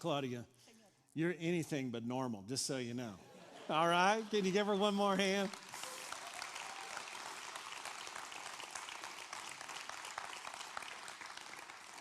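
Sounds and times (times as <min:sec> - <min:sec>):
crowd applauding: 0:03.7 - 0:12.0.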